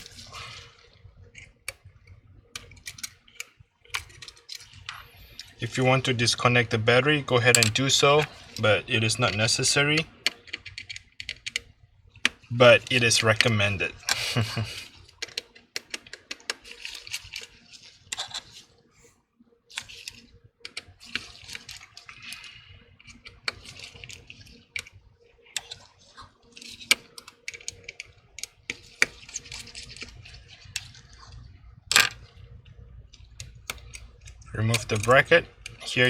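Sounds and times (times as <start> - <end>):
metal scraping on plastic: 19.7 - 36.0
small tools clicking: 33.2 - 36.0.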